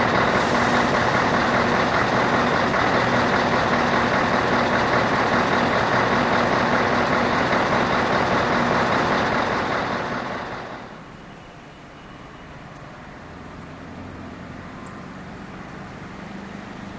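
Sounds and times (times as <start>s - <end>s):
truck engine running loud: 0.0s - 11.2s.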